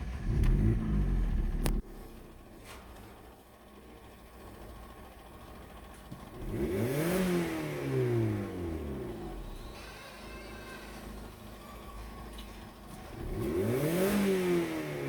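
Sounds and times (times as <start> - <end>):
car engine revving: 0.0 - 1.8, 6.4 - 9.5, 13.2 - 15.0.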